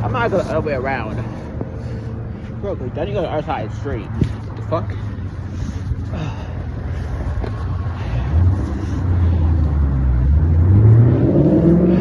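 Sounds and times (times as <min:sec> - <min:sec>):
vehicle engine accelerating: 0:07.2 - 0:12.0.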